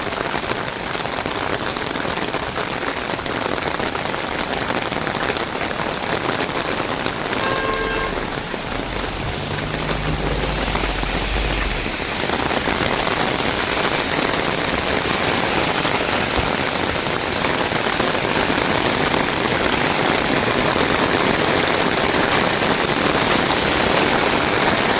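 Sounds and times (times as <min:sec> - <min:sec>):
heavy rain falling: 0:00.0 - 0:24.9
low rumble: 0:06.4 - 0:16.9
faint tone: 0:06.7 - 0:13.3.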